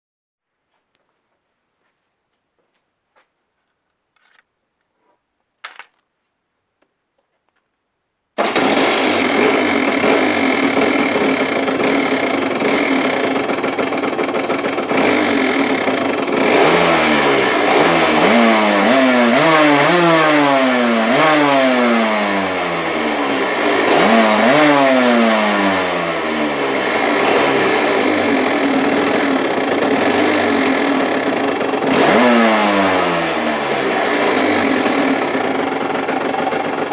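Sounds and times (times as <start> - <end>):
two-stroke motorcycle engine revving: 8.4 - 36.9.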